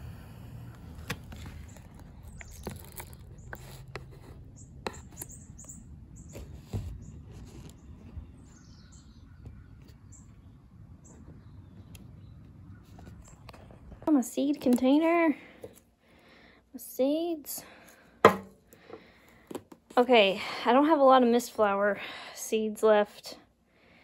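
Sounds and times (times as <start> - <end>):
small birds chirping: 0.6 - 14.1.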